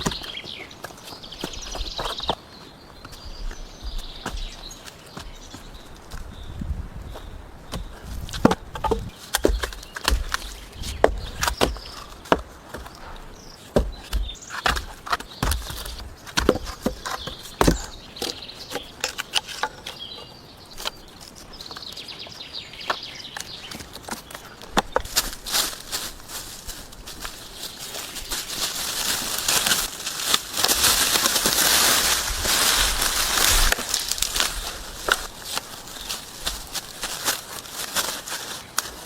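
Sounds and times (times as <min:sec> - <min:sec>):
low thuds: 0:03.2 - 0:12.5
sharp knocks and clicks: 0:07.8 - 0:12.5.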